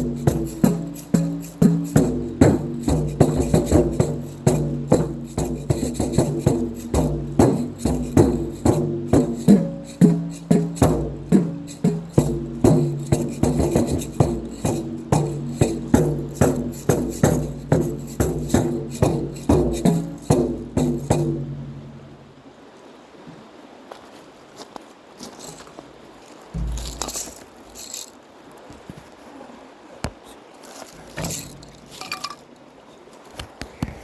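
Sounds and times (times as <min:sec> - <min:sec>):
maracas rattling: 0:00.0 - 0:22.0, 0:26.5 - 0:28.3, 0:30.6 - 0:32.6
tuned drums beating: 0:00.0 - 0:22.2, 0:26.6 - 0:28.0, 0:31.2 - 0:32.0.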